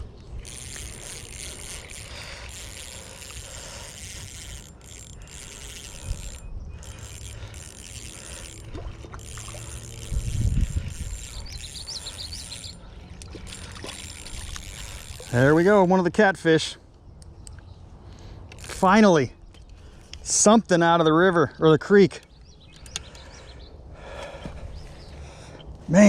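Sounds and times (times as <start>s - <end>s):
spinning reel cranking: 0.0s - 15.8s.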